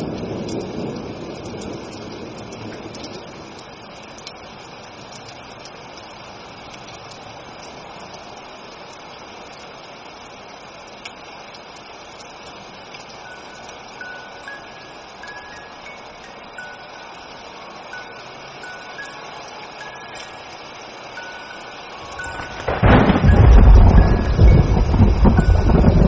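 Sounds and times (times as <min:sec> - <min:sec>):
thunder rumble: 0:00.0 - 0:04.1, 0:22.0 - 0:26.0
rain hiss: 0:00.0 - 0:26.0
raindrop ticks: 0:00.0 - 0:26.0
faint chime tone: 0:13.2 - 0:26.0.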